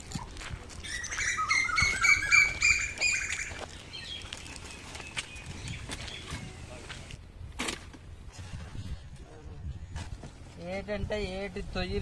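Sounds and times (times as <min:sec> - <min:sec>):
bird calling harsh notes: 0:00.8 - 0:04.2.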